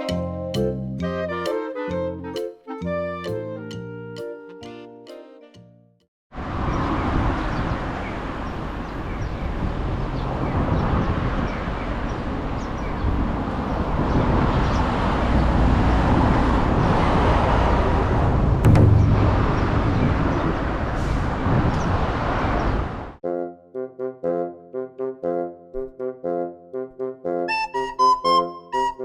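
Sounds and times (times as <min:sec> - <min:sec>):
tune: 0:18.6 - 0:19.8.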